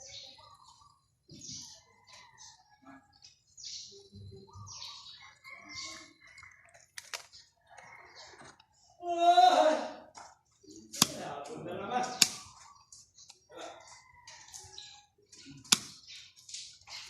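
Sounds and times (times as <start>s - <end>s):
birds chirping: 0.0s - 17.0s
sharp click: 15.7s - 16.0s.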